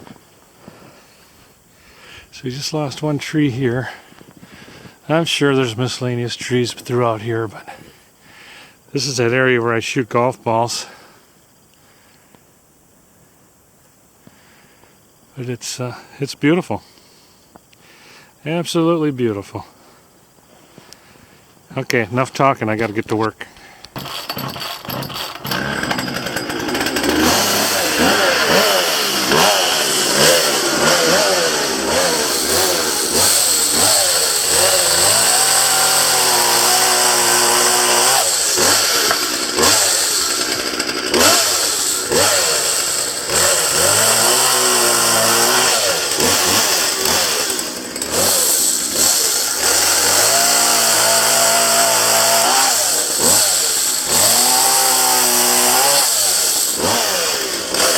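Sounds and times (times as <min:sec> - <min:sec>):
chainsaw cutting branches: 0:23.9 - 0:57.9.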